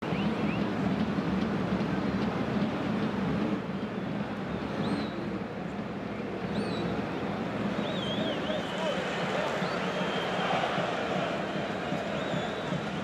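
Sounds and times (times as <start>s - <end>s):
stadium crowd din: 0.0s - 13.0s
fans whistling: 7.6s - 13.0s.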